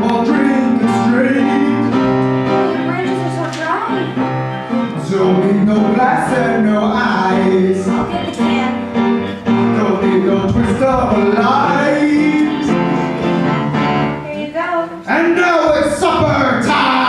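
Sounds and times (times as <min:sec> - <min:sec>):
person singing: 0:00.0 - 0:02.2, 0:04.9 - 0:08.6, 0:09.6 - 0:14.4
band accompaniment: 0:00.0 - 0:17.0.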